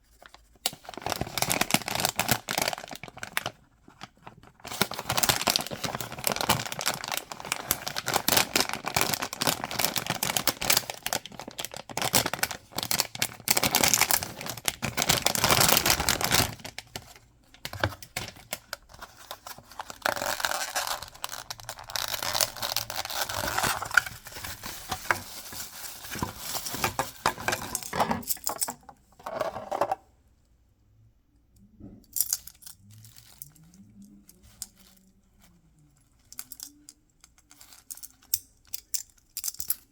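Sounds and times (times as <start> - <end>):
packaging crinkling and tearing: 0.2 - 28.0.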